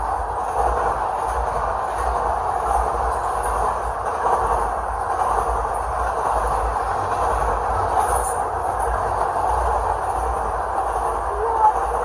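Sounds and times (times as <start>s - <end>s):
freight train wheels rumbling on rail: 0.0s - 12.0s.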